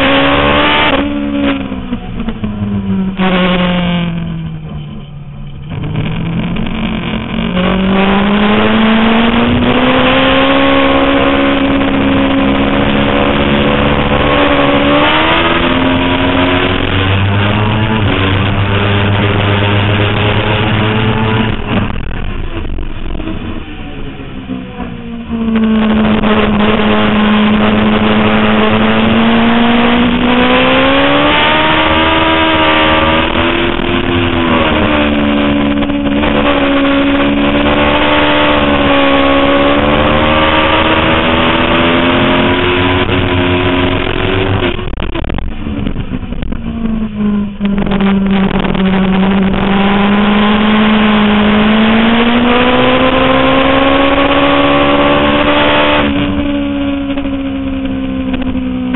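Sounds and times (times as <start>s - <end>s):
sport-bike engine at high revs: 0.0s - 4.5s, 5.7s - 58.9s.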